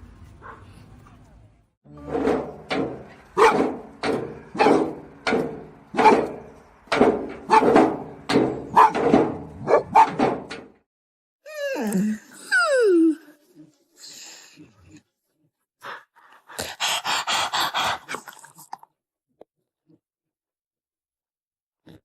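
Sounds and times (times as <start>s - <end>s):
dog barking: 0.4s - 0.7s, 3.4s - 3.7s, 4.5s - 4.9s, 6.0s - 6.3s, 7.5s - 7.8s, 8.7s - 10.2s.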